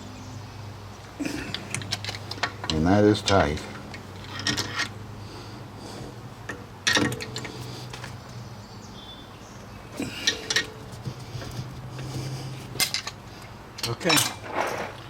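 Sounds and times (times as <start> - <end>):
metal hand tools clinking: 10.0 - 10.8, 13.8 - 14.5.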